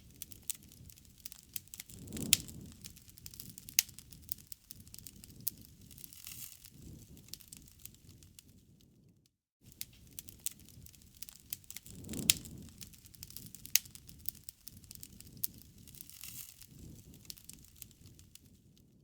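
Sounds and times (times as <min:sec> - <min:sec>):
wood fire crackling and popping: 0:00.0 - 0:08.9, 0:09.7 - 0:19.0.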